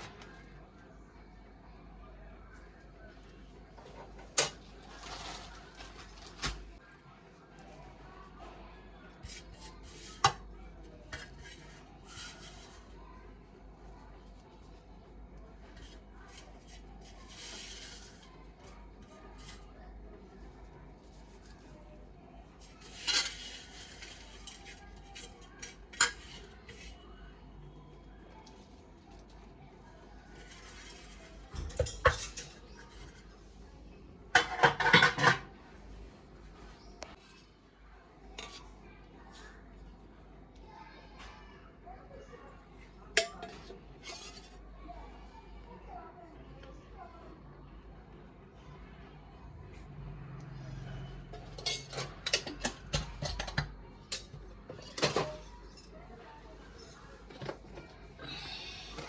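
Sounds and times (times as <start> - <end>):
utensils and dishes clattering: 22.6 - 26.9, 30.4 - 33.4, 34.3 - 35.6, 43.1 - 44.6, 51.1 - 59.0.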